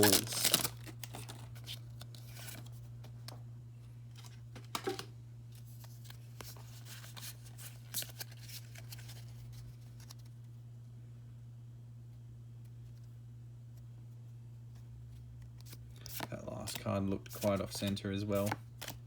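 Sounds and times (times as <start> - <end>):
trading cards clicking and rustling: 0.0 - 3.3, 15.4 - 19.0
low steady hum: 0.0 - 19.0.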